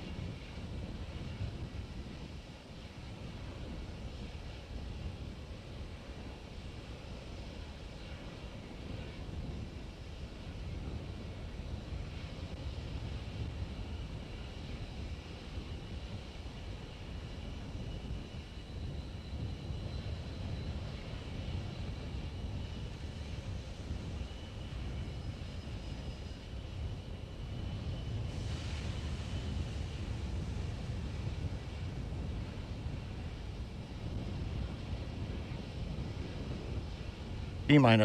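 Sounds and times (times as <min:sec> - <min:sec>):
wind rumble on microphone: 0:00.0 - 0:38.0
hiss: 0:28.3 - 0:30.7.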